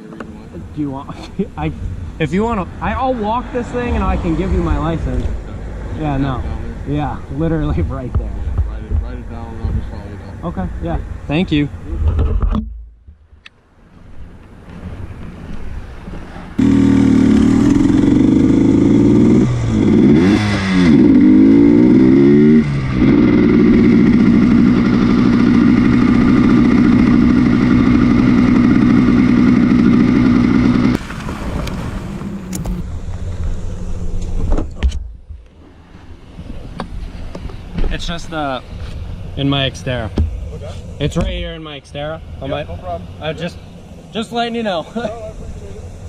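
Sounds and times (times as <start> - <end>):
motorcycle engine revving: 16.5 - 34.5.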